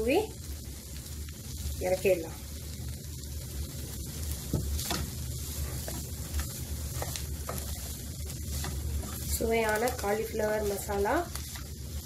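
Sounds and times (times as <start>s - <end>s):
food sizzling in a pan: 0.0s - 12.0s
spatula scraping and knocking pan: 4.4s - 11.8s.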